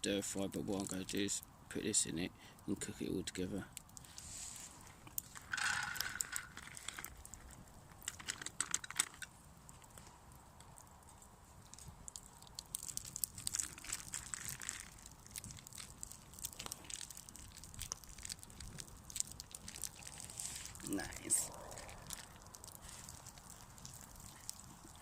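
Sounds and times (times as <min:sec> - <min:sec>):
plastic pouches crinkling: 0:05.2 - 0:09.3, 0:11.8 - 0:25.0.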